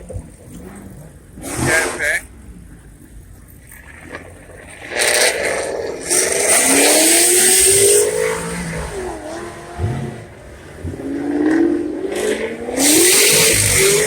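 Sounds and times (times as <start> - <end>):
engine revving hard: 5.0 - 14.0.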